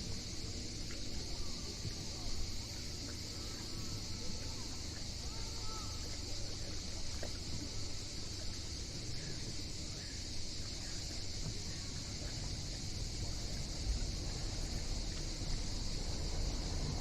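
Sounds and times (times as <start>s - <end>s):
steady high-pitched hiss: 0.0s - 17.0s.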